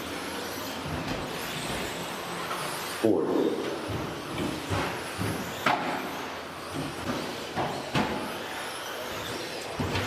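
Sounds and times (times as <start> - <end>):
rc truck motors and tyres hissing: 0.0 - 3.0, 3.7 - 10.0.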